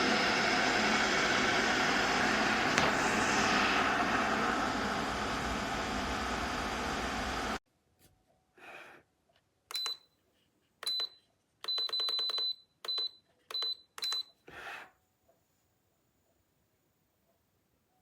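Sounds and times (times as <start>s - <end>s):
kettle boiling: 0.0s - 7.6s
kettle control panel beeps: 9.7s - 10.1s, 10.8s - 14.3s.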